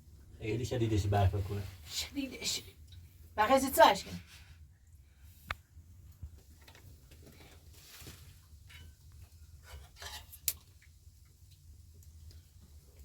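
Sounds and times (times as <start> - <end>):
faint clicks and knocks: 5.4 - 7.7.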